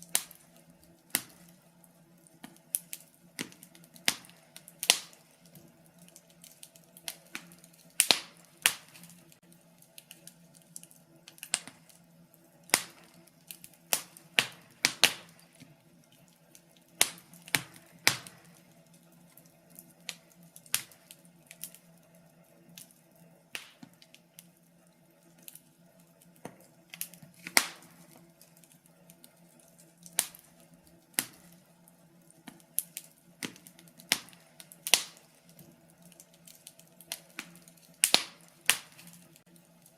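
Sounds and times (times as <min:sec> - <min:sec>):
sharp pops and snaps: 0:00.0 - 0:12.0, 0:12.6 - 0:21.9, 0:23.5 - 0:24.5, 0:25.4 - 0:31.7, 0:32.3 - 0:39.7
wood logs crackling in fireplace: 0:00.0 - 0:39.9.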